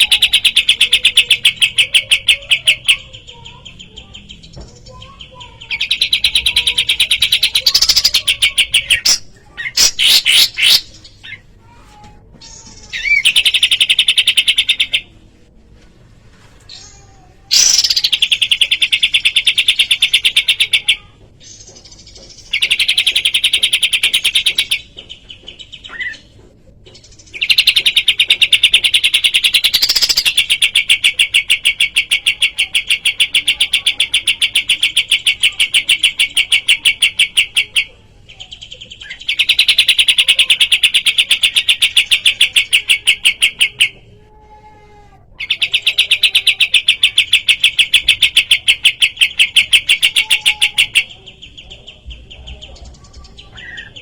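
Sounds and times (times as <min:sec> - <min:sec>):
songbird chirping rapidly: 0:00.0 - 0:11.6.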